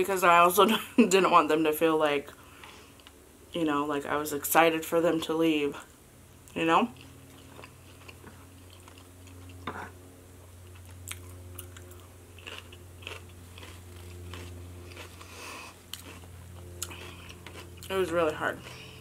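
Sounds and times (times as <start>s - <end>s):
steady low hum: 0.0s - 19.0s
chewing crisp salad: 6.4s - 10.0s, 10.6s - 19.0s.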